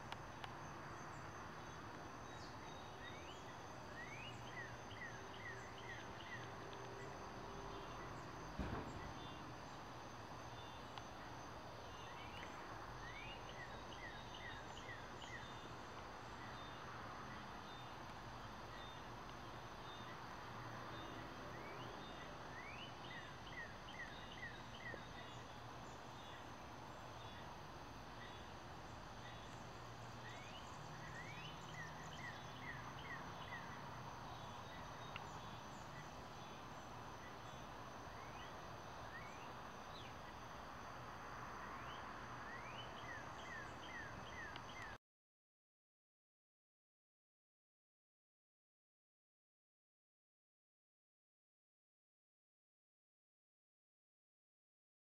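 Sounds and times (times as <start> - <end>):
high-pitched insect chorus: 0.0 - 45.0
bird singing: 0.4 - 40.4, 41.6 - 45.0.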